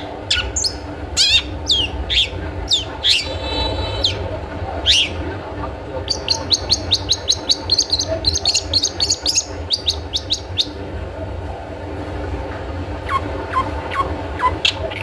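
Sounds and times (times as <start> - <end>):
bird calling high slurred notes: 0.0 - 5.2, 6.0 - 10.8, 13.0 - 15.0
steady low hum: 0.0 - 15.0.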